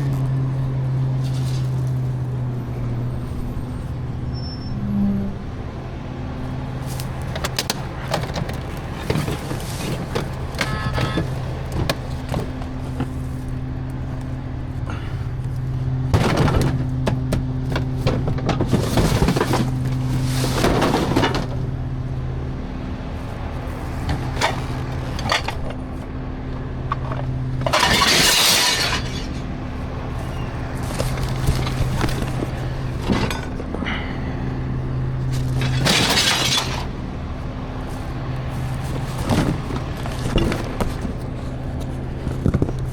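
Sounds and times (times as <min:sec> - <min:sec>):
garbage truck engine idling: 0:00.0 - 0:42.9
refuse knocking and clinking: 0:07.2 - 0:13.3, 0:26.7 - 0:34.2
loud crash: 0:27.7 - 0:29.4
glass breaking: 0:27.7 - 0:29.5, 0:35.5 - 0:36.9.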